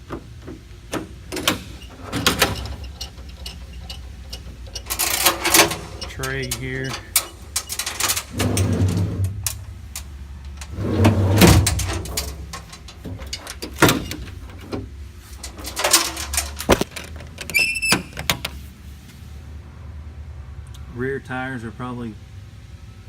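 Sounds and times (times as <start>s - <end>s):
metal compartment doors clanking: 0.0s - 18.6s
metal doors banging: 0.0s - 18.6s
short high squeak: 17.5s - 18.2s.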